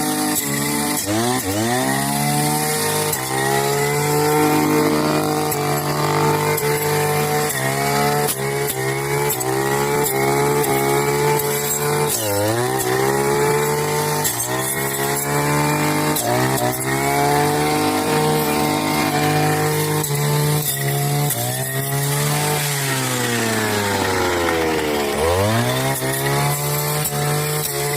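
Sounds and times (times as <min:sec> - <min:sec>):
brush cutter engine at high revs: 0:00.0 - 0:27.9.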